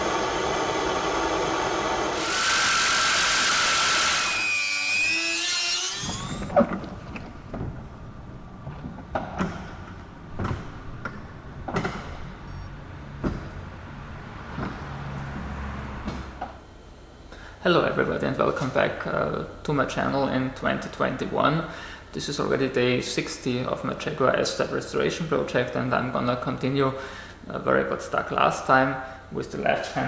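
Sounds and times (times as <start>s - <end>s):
whirring grinding machine: 0.0s - 7.5s.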